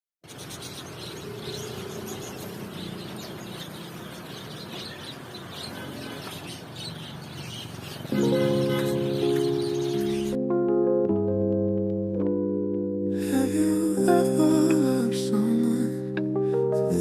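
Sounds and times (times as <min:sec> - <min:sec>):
birds chirping: 0:00.2 - 0:10.4
music: 0:08.1 - 0:17.0.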